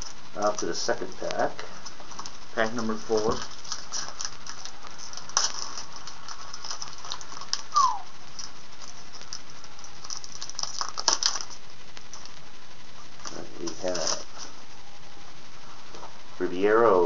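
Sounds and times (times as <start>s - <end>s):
card pack wrapper crackling: 0.0s - 14.6s.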